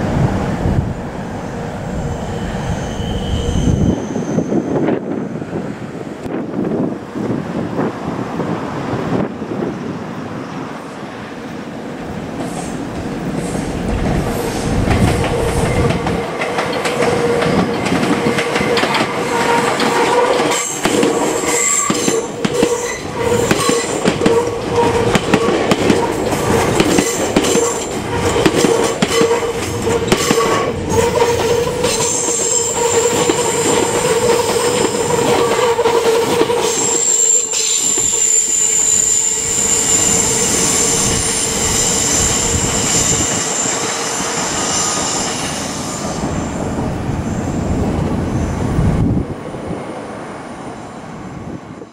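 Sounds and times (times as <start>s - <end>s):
train wheels squealing on rails: 1.4s - 5.4s, 12.4s - 48.9s
high steady screech: 1.9s - 4.8s, 30.9s - 46.6s
clacking over rail joints: 14.8s - 32.4s.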